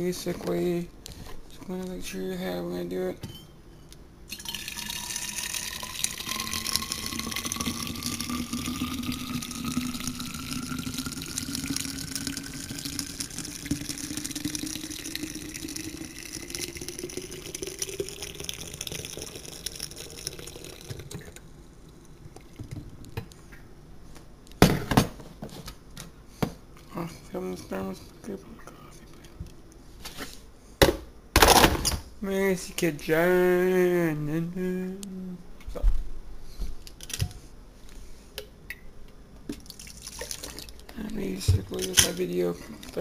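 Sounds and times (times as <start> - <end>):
coffee pouring into bottle: 4.3 - 21.5, 39.6 - 40.8.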